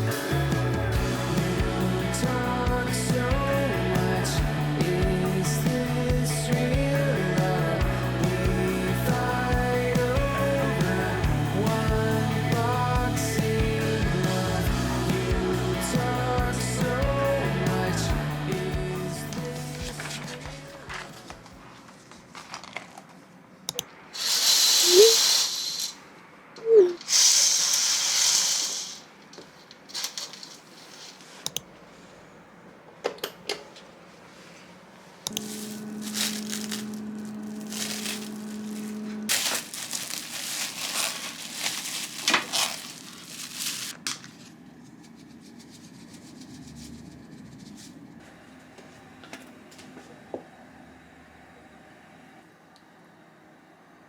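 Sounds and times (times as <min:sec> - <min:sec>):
hissing crinkling bursts: 0:24.2 - 0:26.0, 0:27.0 - 0:29.3, 0:36.1 - 0:44.1
rustling: 0:29.5 - 0:32.2, 0:35.4 - 0:48.1
steady hum: 0:34.1 - 0:54.0.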